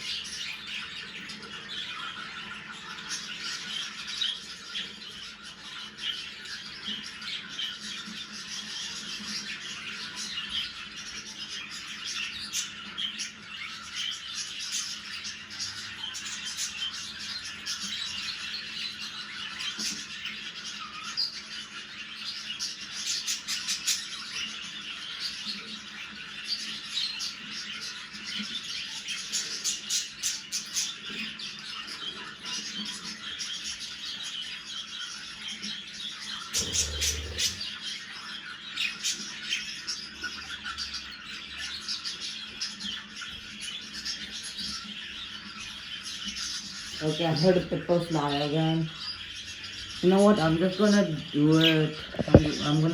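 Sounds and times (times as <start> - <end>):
budgerigars chattering: 36.6 - 37.7.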